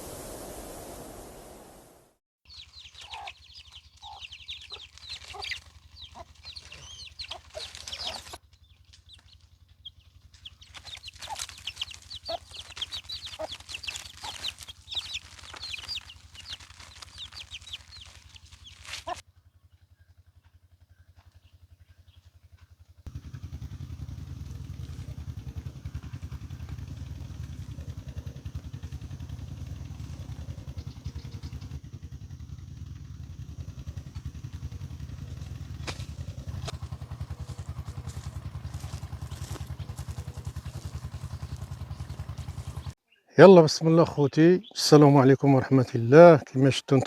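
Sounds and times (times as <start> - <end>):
chickens clucking: 2.5 - 19.2, 24.8 - 31.8, 33.9 - 43.0
chicks cheeping: 2.5 - 19.2, 23.7 - 32.4, 33.3 - 43.0.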